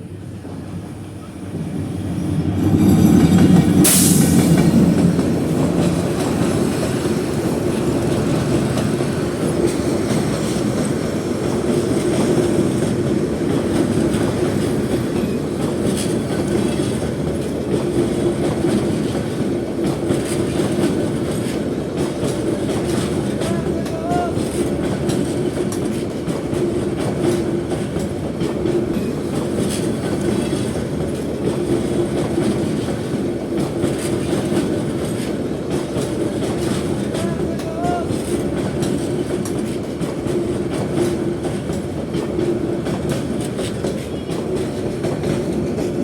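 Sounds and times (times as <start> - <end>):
train rumbling on rails: 0.0 - 46.0
wheels clacking over rail joints: 0.4 - 46.0.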